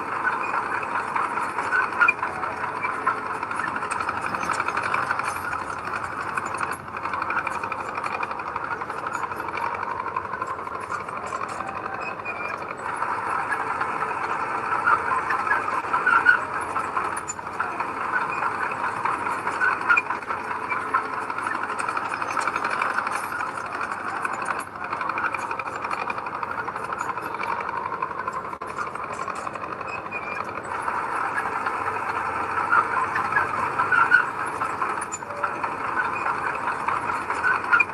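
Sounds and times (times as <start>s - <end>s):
diesel earthmoving machinery running: 0.0s - 37.9s.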